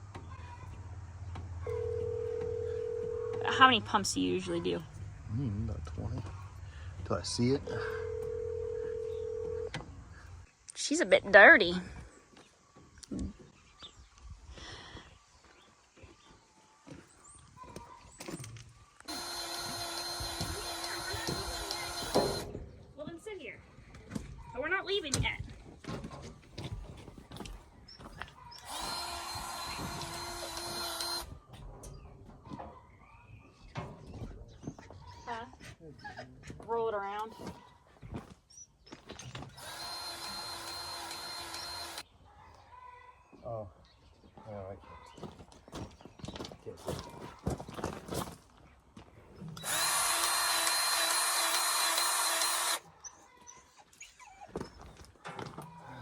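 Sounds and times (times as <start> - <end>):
small electric motor whirring: 19.1 - 22.6, 28.6 - 31.3, 39.5 - 42.0, 49.6 - 52.9.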